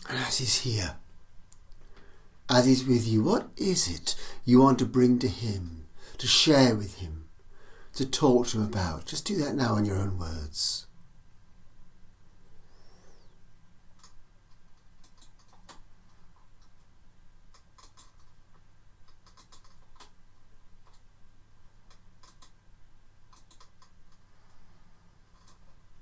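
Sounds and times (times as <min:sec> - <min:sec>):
steady low hum: 0:00.0 - 0:26.0
faint clicks and ticks: 0:13.9 - 0:24.6, 0:25.2 - 0:26.0.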